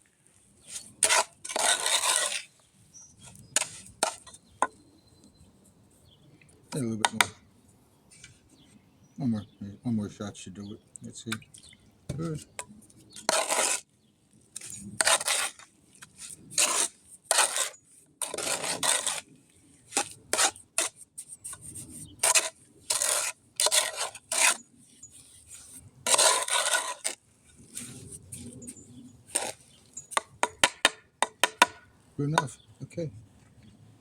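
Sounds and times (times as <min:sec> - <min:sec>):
tool scraping wet concrete: 0:00.6 - 0:04.4, 0:12.2 - 0:13.8, 0:14.6 - 0:31.7.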